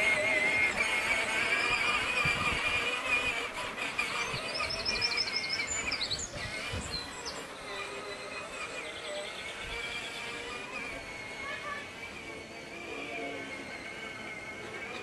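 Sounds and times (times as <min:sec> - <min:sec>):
outdoor background noise: 0:00.0 - 0:15.0
high bird chirps: 0:04.2 - 0:07.8.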